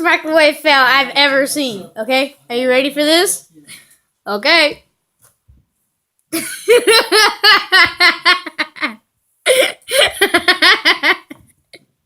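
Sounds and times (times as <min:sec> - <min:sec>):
person laughing hard: 0:06.4 - 0:11.4.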